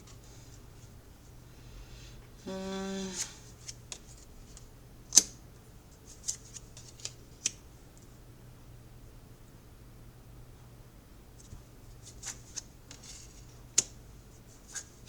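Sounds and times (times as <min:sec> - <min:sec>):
cards snapping and clicking: 0:03.6 - 0:05.4, 0:06.2 - 0:07.6, 0:12.2 - 0:14.0.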